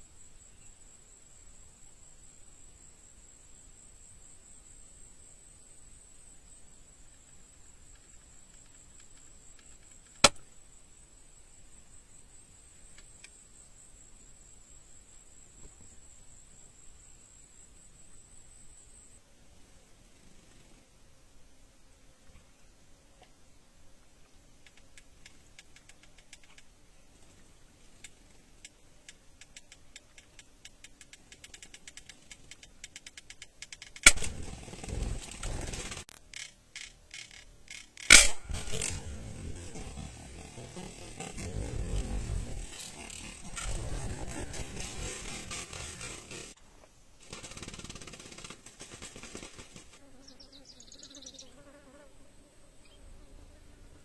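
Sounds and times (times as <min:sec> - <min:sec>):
rapid buzzing flutter: 0:20.0 - 0:21.0, 0:27.2 - 0:46.6, 0:47.2 - 0:52.1
bird trap snapping: 0:37.7 - 0:39.2
small bird chirping: 0:50.1 - 0:51.6.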